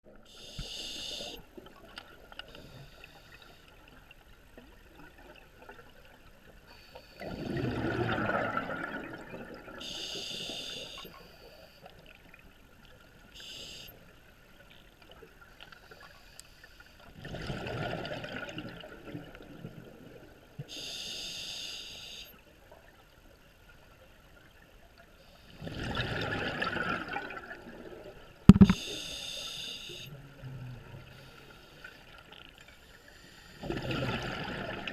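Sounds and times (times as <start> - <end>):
regulator inhale hissing: 0.3 - 1.4, 9.8 - 11.8, 13.4 - 14.1, 20.7 - 22.4, 28.7 - 30.2, 32.9 - 33.6
exhaled bubbles underwater: 7.2 - 9.9, 17.2 - 20.3, 25.6 - 28.8, 33.6 - 34.9
sharp knock: 28.5 - 28.8.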